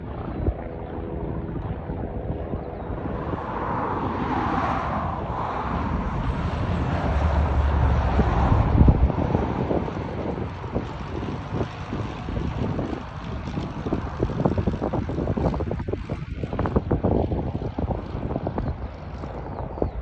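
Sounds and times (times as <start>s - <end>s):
propeller plane engine droning: 0.0s - 20.0s
wind buffeting microphone: 0.0s - 20.0s.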